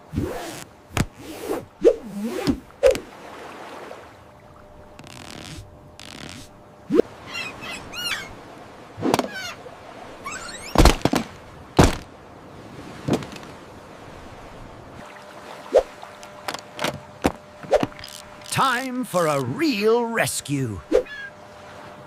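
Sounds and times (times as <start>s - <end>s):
sharp thunks: 0.9s - 1.2s, 10.6s - 12.1s, 13.0s - 13.6s
birds chirping: 7.2s - 8.4s, 17.9s - 21.5s
faint steady wash: 11.4s - 22.0s.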